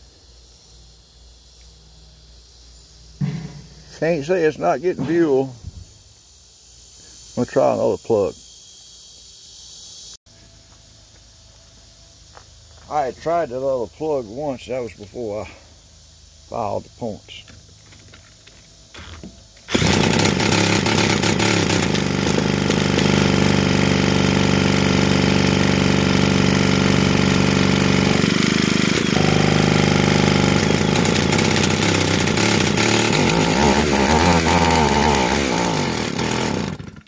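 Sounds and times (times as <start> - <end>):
chainsaw engine running: 17.4 - 37.0.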